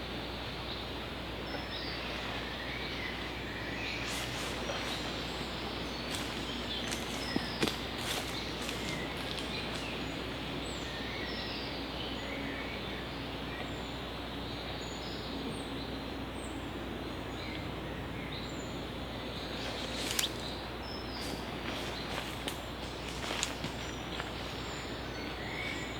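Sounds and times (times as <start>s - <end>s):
small birds chirping: 1.5s - 15.8s, 17.4s - 25.9s
background hiss: 18.8s - 25.9s.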